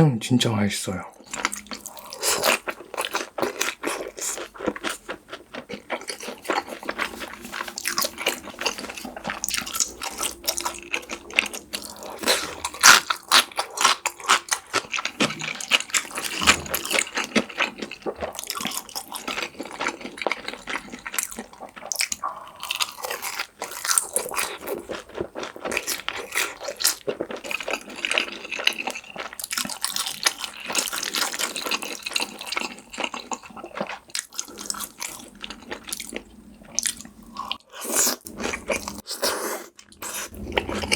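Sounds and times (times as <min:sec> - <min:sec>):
noodle slurping and chewing: 0:01.2 - 0:40.9.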